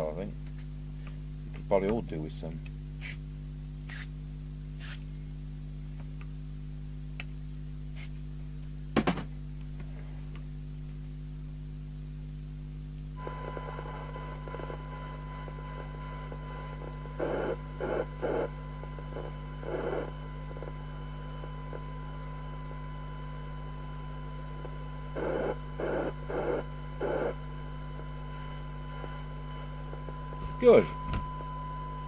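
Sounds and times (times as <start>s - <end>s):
low mains hum: 0.0s - 32.0s
high test tone: 28.4s - 32.0s.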